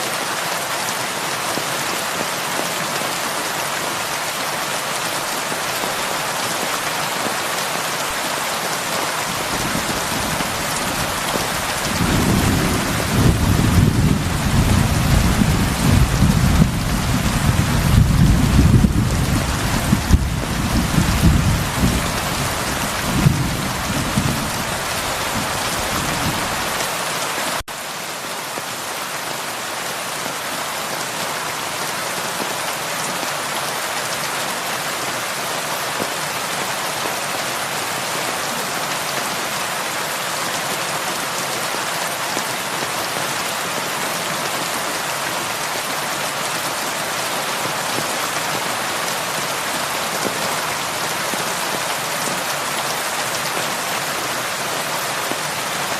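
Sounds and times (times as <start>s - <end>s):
heavy rain: 0.0s - 55.9s
thunder rumble: 9.4s - 26.6s.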